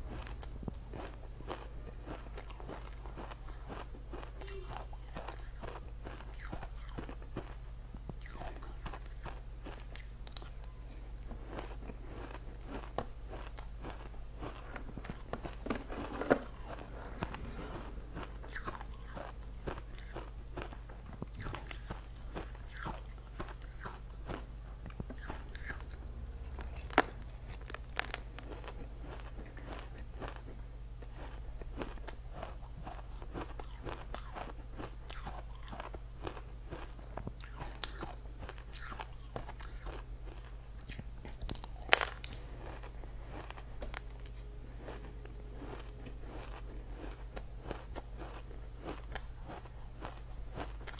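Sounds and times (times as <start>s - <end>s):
ice crunched between teeth: 26.5s - 30.4s, 31.1s - 50.9s.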